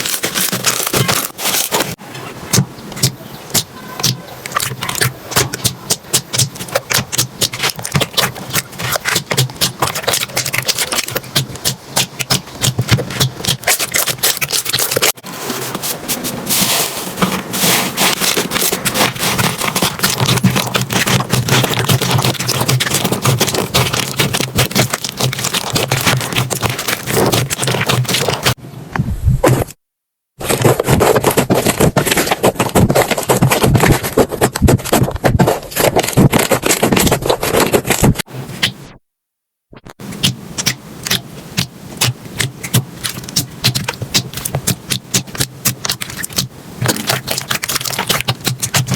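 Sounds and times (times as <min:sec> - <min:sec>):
sticky clicks and pops: 0:02.5 - 0:15.2, 0:18.0 - 0:28.6, 0:39.8 - 0:48.9.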